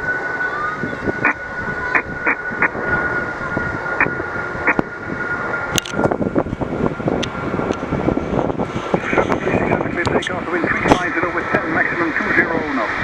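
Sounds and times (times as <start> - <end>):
radio receiver hiss: 9.0 - 12.6.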